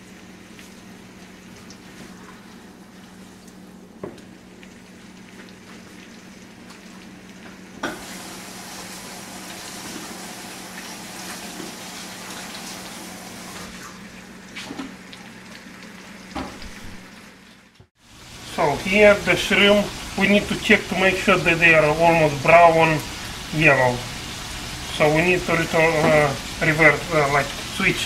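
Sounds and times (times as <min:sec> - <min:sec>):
shrimp sizzling in a frying pan: 0:04.2 - 0:13.3, 0:18.0 - 0:28.0.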